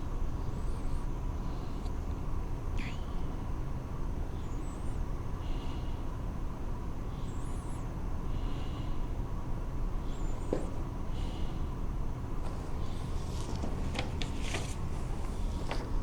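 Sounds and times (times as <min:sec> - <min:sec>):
low room rumble: 0:00.0 - 0:16.0.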